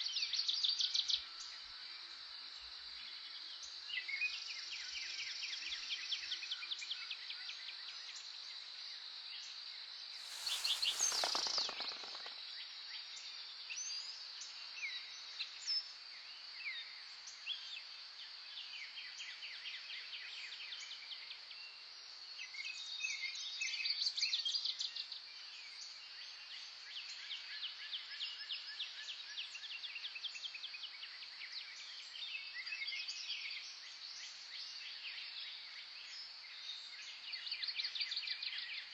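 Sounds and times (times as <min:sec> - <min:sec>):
small birds chirping and trilling: 0:10.2 - 0:12.4.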